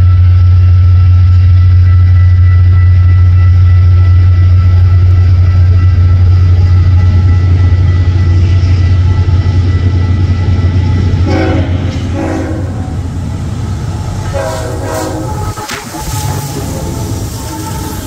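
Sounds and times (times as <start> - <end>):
train rumbling by: 0.0 - 18.0
locomotive horn blasts: 10.9 - 13.1, 14.2 - 18.0.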